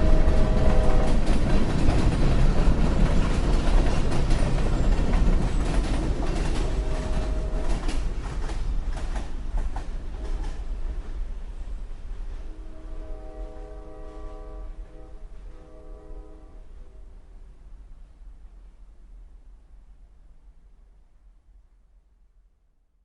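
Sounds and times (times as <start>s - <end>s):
train rumbling on rails: 0.0s - 21.8s.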